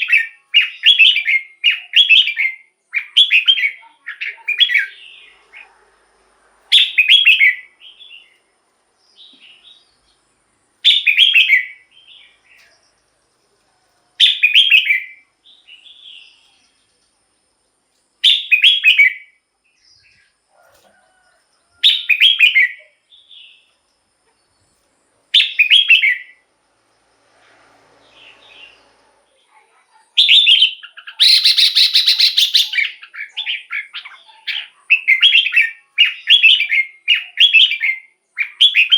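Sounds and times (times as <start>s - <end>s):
bird singing whistled phrases: 0.0s - 5.3s, 6.7s - 8.4s, 10.9s - 12.4s, 14.2s - 16.5s, 18.2s - 19.3s, 25.4s - 26.4s, 30.2s - 38.9s.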